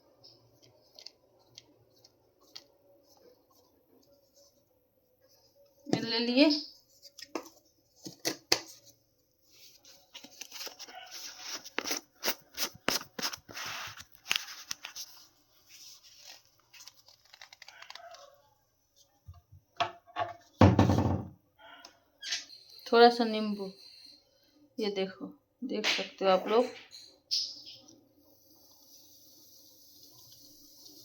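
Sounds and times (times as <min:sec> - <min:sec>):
packaging crinkling and tearing: 0:10.0 - 0:15.2, 0:16.0 - 0:18.3.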